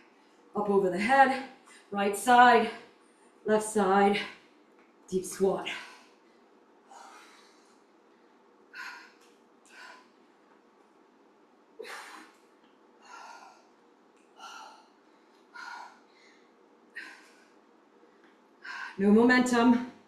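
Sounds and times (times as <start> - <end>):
woman breathing hard: 5.6 - 10.4, 11.8 - 17.7, 18.5 - 19.0.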